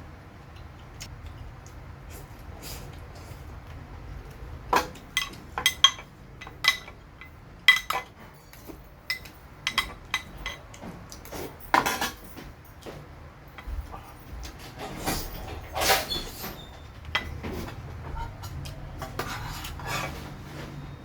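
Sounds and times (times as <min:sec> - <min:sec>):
cutlery clinking against dishes: 0:04.7 - 0:13.0.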